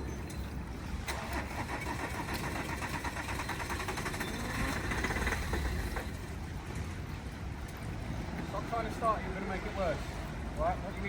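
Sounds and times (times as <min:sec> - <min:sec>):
car starter motor cranking: 0:01.0 - 0:05.9.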